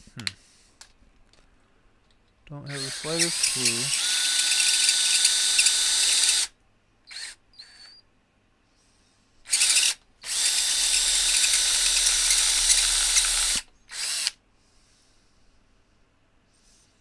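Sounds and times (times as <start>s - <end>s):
power drill spinning on metal: 2.7s - 6.5s, 9.5s - 14.4s.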